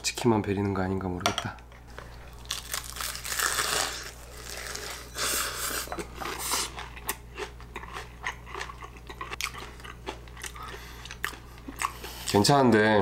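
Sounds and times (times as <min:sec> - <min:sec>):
crunchy fried chicken chewing: 0:02.3 - 0:12.4.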